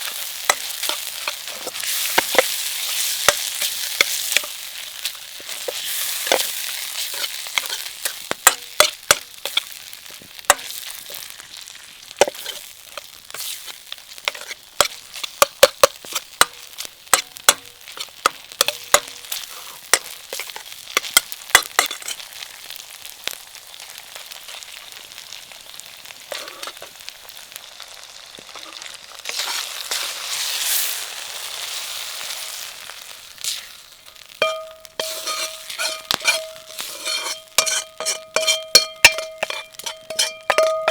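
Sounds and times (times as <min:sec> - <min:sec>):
metal utensil clacking on pan: 0:00.0 - 0:04.6, 0:05.4 - 0:09.7, 0:10.5 - 0:10.9, 0:12.2 - 0:13.1, 0:14.3 - 0:22.2, 0:26.3 - 0:26.9, 0:33.5 - 0:40.9
food sizzling in a pan: 0:00.0 - 0:40.9.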